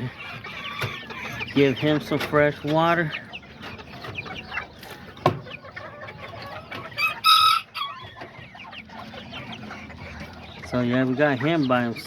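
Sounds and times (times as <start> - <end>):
chickens clucking and chirping: 0.0 - 12.0.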